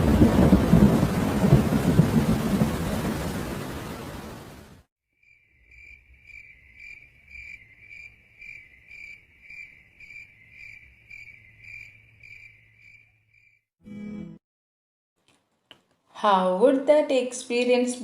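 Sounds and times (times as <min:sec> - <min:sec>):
thunder: 0:00.0 - 0:04.6
rain: 0:00.0 - 0:04.9
cricket chirping: 0:05.2 - 0:13.6.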